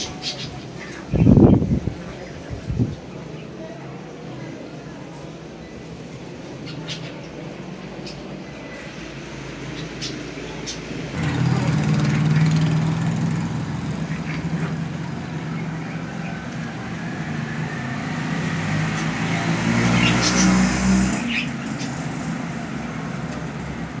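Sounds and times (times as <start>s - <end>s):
vehicle engine running: 11.0s - 24.0s.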